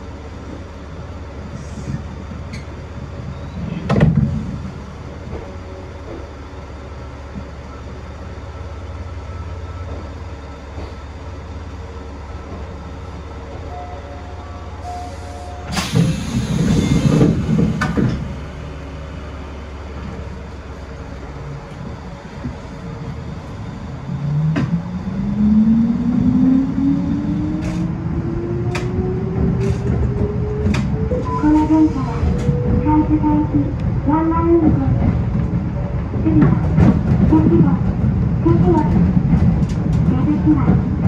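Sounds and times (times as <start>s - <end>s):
electric train rumble and hum: 0.0s - 41.0s.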